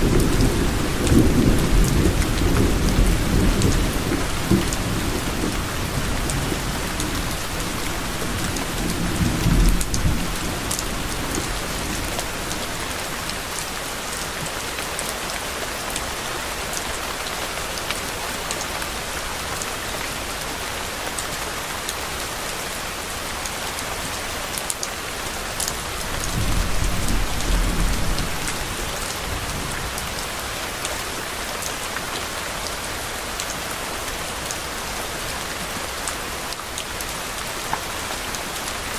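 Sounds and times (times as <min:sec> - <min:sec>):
thunder rumbling: 0:00.0 - 0:13.1, 0:26.1 - 0:30.0
rain pattering: 0:00.0 - 0:38.9.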